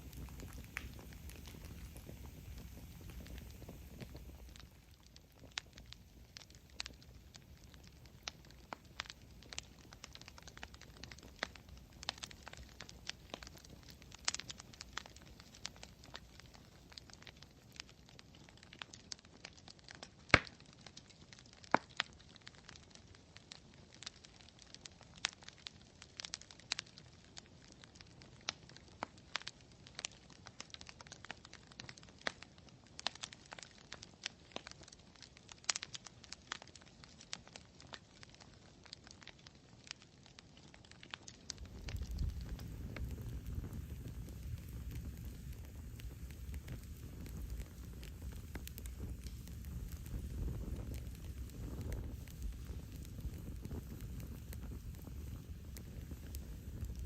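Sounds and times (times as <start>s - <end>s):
low hiss: 0.0s - 17.6s, 41.4s - 57.0s
campfire crackling and popping: 0.0s - 57.0s.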